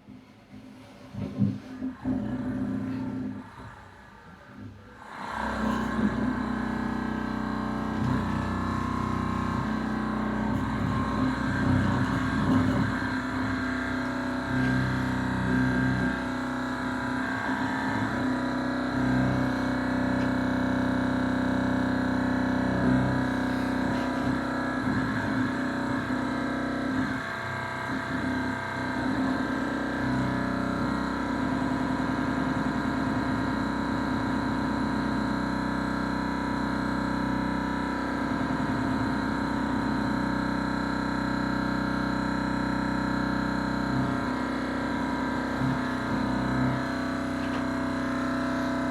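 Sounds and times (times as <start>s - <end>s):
engine low hum: 42.1s - 48.9s.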